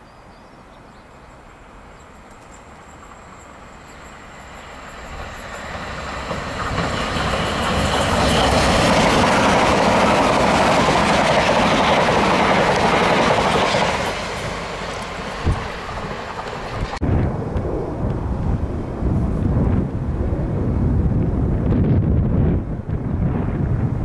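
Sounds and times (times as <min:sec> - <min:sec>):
train passing at speed: 0:00.0 - 0:24.0.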